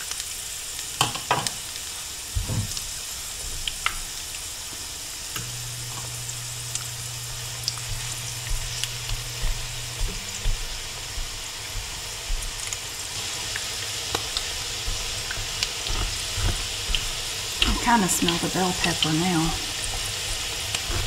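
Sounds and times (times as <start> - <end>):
patties sizzling in hot oil: 0.0 - 21.0
spatula scraping in pan: 13.2 - 21.0.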